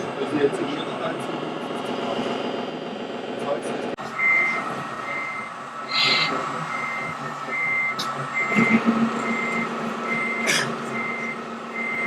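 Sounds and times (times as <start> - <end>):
reversing beeper beeps: 4.2 - 12.0.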